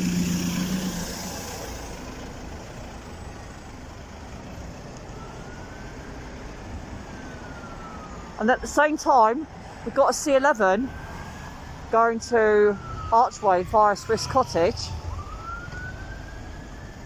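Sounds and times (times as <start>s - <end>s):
large vehicle engine: 0.0s - 8.4s, 11.7s - 17.0s
traffic rumble: 0.0s - 17.0s.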